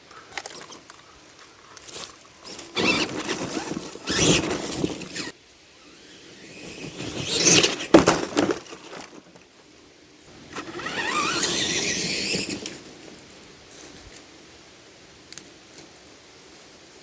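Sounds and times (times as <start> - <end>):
electric motor and gears whining: 1.8 - 9.3, 10.4 - 13.0.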